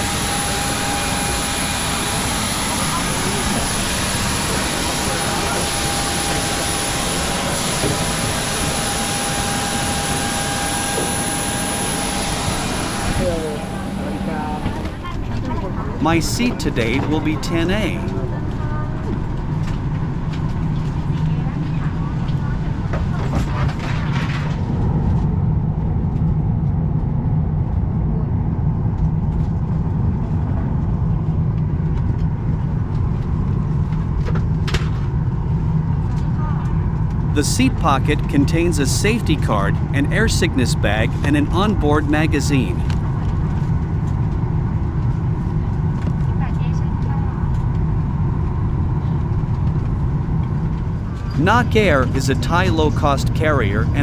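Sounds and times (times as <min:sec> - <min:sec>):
jet turbine running with whine: 0:00.0 - 0:15.0
faint passenger chatter: 0:12.0 - 0:19.1, 0:37.4 - 0:42.9.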